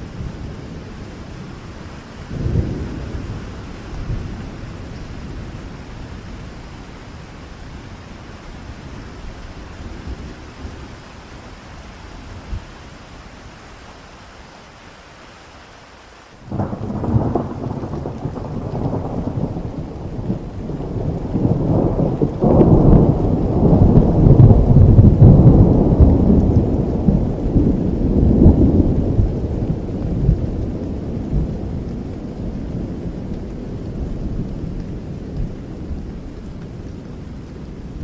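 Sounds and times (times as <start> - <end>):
thunder rumbling: 0.0 - 7.5, 16.5 - 38.0
rain falling: 0.0 - 38.0
thunder crack: 16.5 - 29.4.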